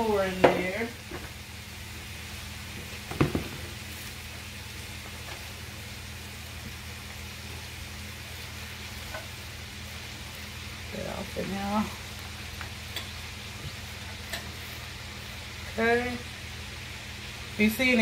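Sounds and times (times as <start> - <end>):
steady low hum: 0.0 - 18.0
vegetables sizzling in oil: 0.0 - 18.0
knock: 3.1 - 3.6.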